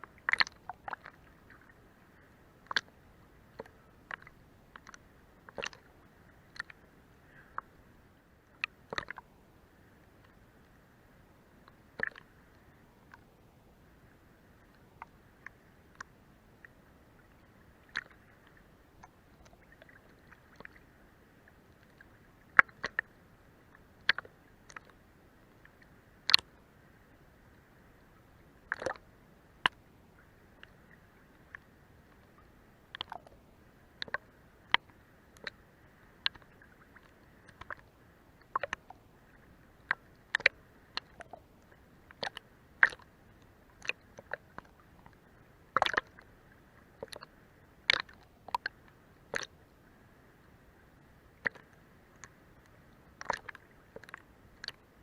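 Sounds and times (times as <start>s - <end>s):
water slapping boat hull: 0.0s - 7.7s, 8.5s - 9.3s, 28.7s - 29.0s, 36.2s - 47.2s, 53.1s - 54.9s
faint water wash: 0.0s - 55.0s.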